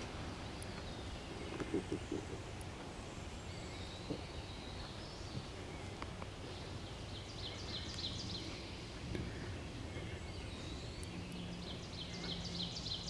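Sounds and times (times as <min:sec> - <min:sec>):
low background hiss: 0:00.0 - 0:13.0
songbirds singing: 0:00.0 - 0:13.0.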